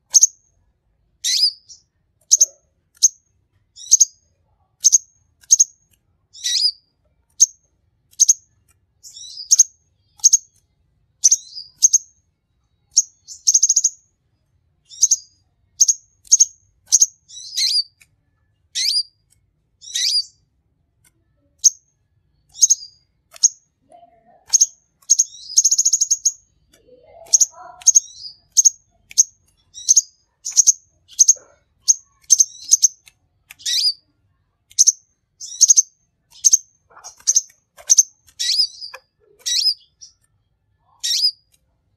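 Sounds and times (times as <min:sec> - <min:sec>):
bird chirping: 0:00.0 - 0:00.6, 0:01.2 - 0:20.5, 0:21.2 - 0:41.6
buzzy bird trill: 0:00.1 - 0:00.4, 0:01.2 - 0:03.2, 0:03.8 - 0:04.2, 0:04.8 - 0:10.6, 0:11.2 - 0:12.2, 0:12.9 - 0:14.0, 0:14.9 - 0:18.0, 0:18.7 - 0:19.2, 0:19.8 - 0:20.4, 0:21.6 - 0:34.1, 0:34.7 - 0:40.2, 0:40.8 - 0:41.5.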